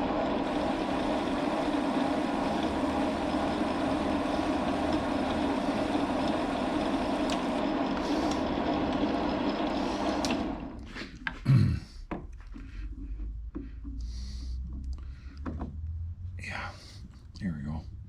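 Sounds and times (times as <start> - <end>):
metal lathe running: 0.0 - 10.9.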